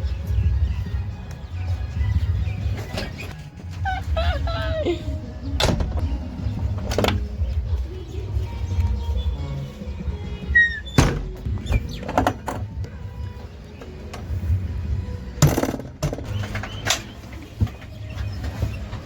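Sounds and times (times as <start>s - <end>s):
sharp knocks and clanks: 15.4s - 17.9s.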